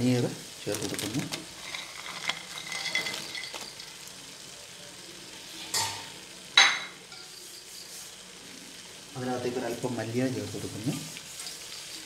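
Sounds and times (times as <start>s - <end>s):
food sizzling in a pot: 0.0s - 12.0s
utensil clinks: 1.6s - 4.0s.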